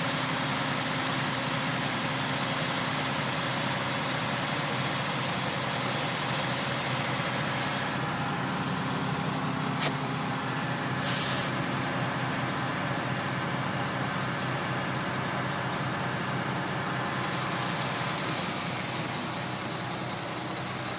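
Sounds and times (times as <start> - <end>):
diesel truck engine running: 0.0 - 20.9
air brake hissing: 9.7 - 10.1, 11.0 - 11.9, 20.4 - 20.9.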